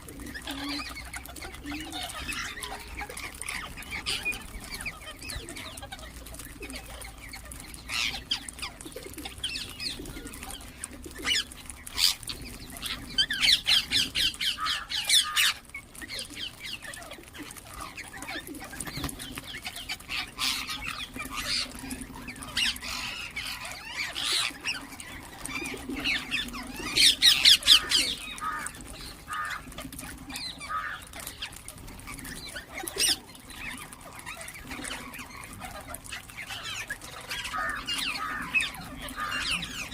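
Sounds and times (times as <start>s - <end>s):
parakeets calling shrilly: 11.2s - 16.9s, 19.8s - 39.9s.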